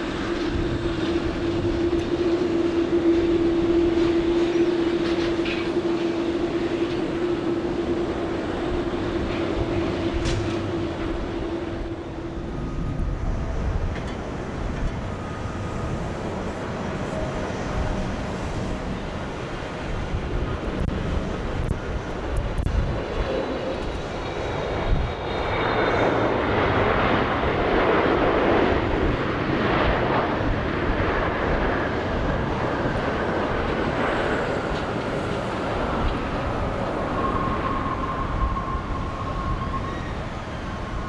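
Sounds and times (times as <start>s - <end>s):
jet engines roaring past: 0.0s - 41.0s
wind rumble on microphone: 0.0s - 41.0s.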